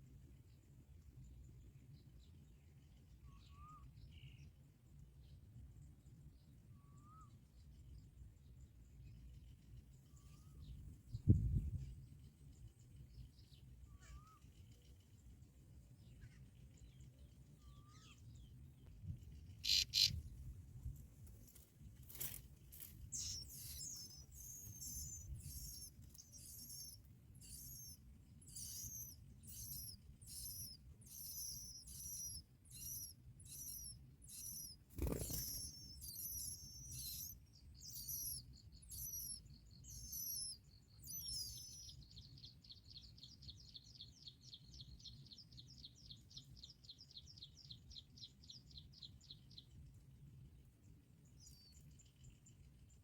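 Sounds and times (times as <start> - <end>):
birds chirping: 19.3 - 20.4, 22.2 - 42.4
bird trilling: 19.6 - 20.2, 23.1 - 41.9.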